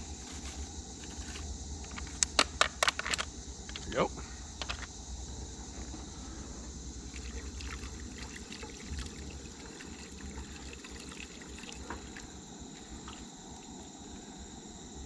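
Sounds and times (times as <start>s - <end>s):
liquid sloshing in a pan: 7.1s - 14.1s.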